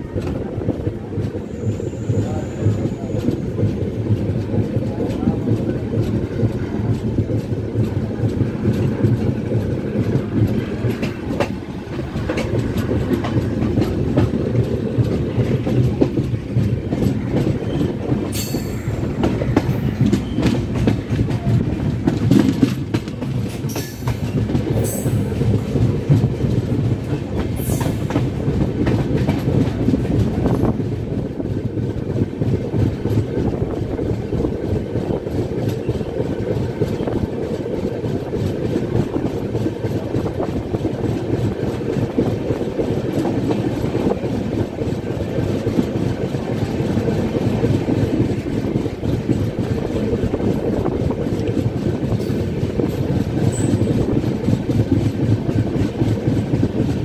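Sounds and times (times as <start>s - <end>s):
train wheels rumbling on rail: 0.0s - 57.0s
wheels clicking over rail joints: 2.6s - 57.0s.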